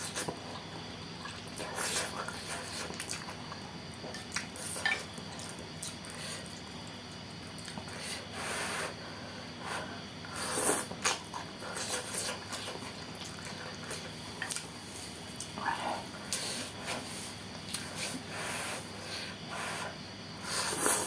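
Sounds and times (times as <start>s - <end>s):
wet chewing and slurping: 0.0s - 8.0s, 10.4s - 19.0s.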